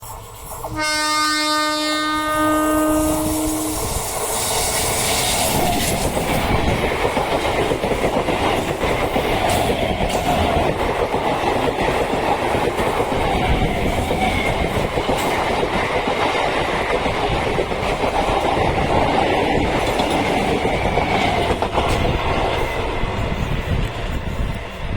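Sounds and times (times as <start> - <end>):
train horn: 0.7 - 4.1
train wheels clattering over rails: 3.7 - 24.9.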